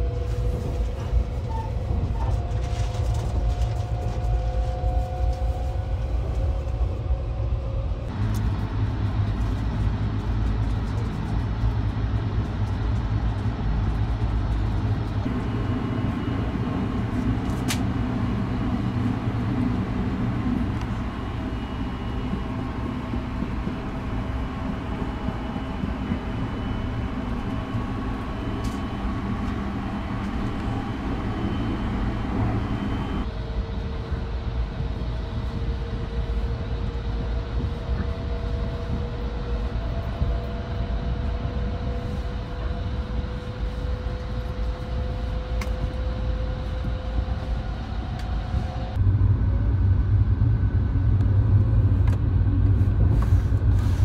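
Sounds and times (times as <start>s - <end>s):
train running rumble: 0.0s - 54.0s
faint whine rising in pitch: 15.2s - 54.0s.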